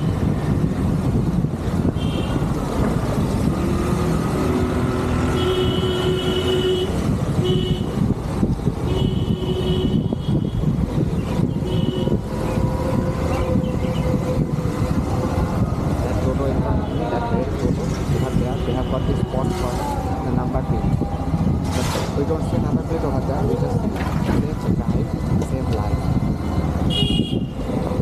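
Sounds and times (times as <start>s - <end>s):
motorcycle engine and wind rumble: 0.0s - 28.0s
vehicle horns honking: 1.9s - 2.5s, 5.1s - 8.0s, 8.8s - 10.7s, 11.6s - 12.2s, 26.8s - 27.6s.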